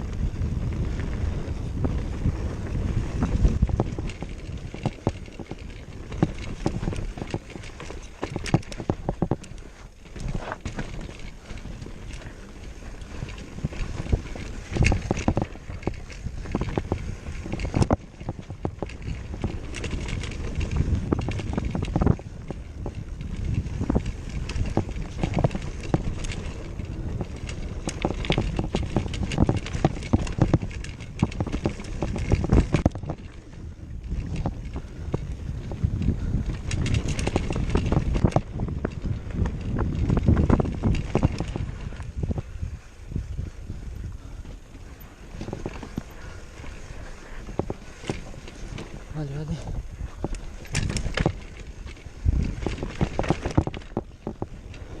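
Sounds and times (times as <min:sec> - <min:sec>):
wind buffeting microphone: 0:00.0 - 0:55.0
irregular clicks and knocks: 0:13.3 - 0:33.4, 0:50.1 - 0:54.9.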